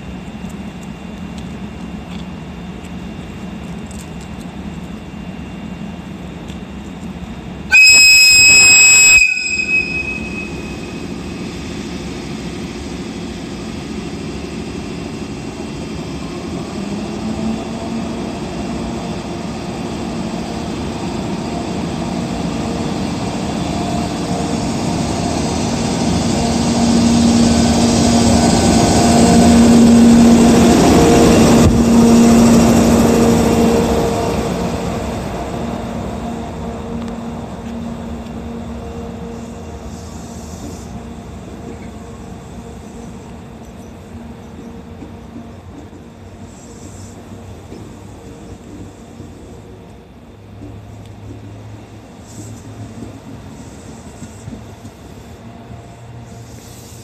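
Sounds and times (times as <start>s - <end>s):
train running noise: 0.0s - 57.0s
locomotive whistle: 7.7s - 11.1s.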